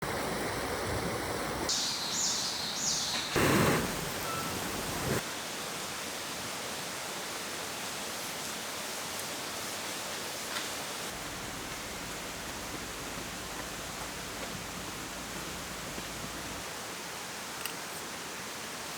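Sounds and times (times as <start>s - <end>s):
steady rain falling: 0.0s - 18.9s
short high chirps: 1.7s - 5.2s.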